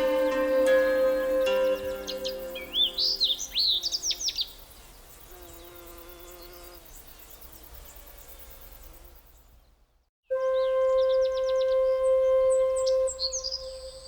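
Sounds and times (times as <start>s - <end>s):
loud steady musical drone: 0.0s - 3.1s
held humming tones: 0.0s - 3.5s, 10.3s - 14.0s
sharp bird chirps: 0.0s - 4.6s
faint insect buzzing: 0.0s - 9.7s.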